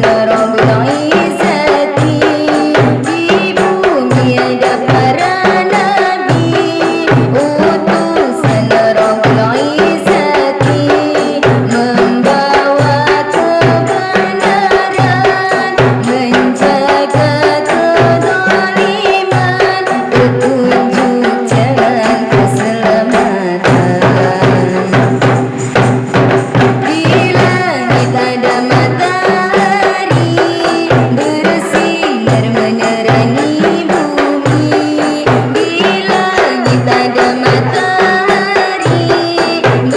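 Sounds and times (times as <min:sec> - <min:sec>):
frame drum strokes: 0:00.0 - 0:39.9
tambourine jingles: 0:00.0 - 0:39.9.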